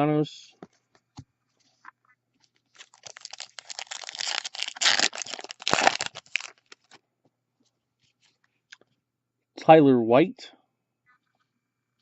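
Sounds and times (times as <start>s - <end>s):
card wrapper crinkling: 2.7s - 7.0s.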